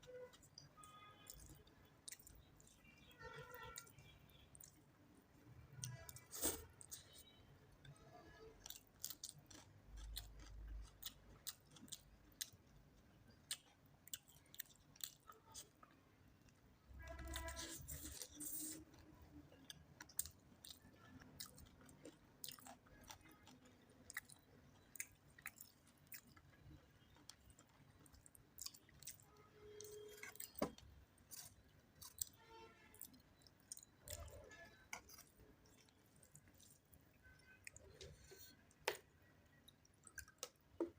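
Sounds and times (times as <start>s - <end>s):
person chewing with mouth clicks: 8.6s - 12.6s, 13.3s - 16.0s.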